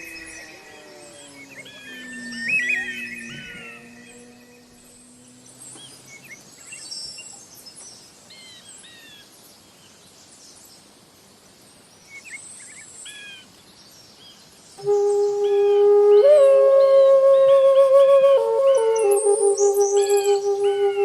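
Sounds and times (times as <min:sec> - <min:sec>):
bird chirps and whistles: 0:00.0 - 0:04.5
faint hiss: 0:00.0 - 0:21.0.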